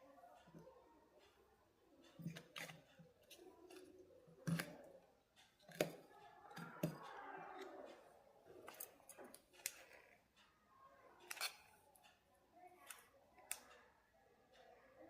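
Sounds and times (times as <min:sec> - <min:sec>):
tools clicking and knocking: 0:02.0 - 0:10.5.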